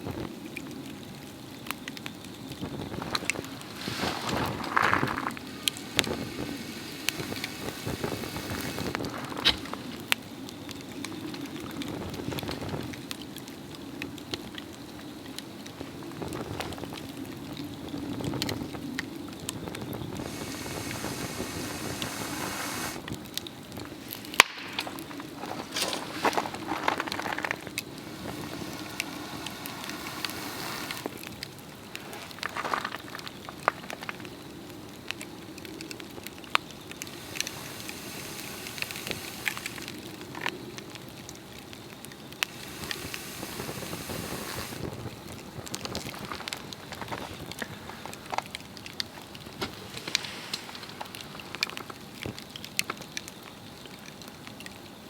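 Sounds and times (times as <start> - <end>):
log fire crackling and hissing: 0.0 - 55.0
sharp pops of burning wood: 2.0 - 10.8, 19.4 - 53.0.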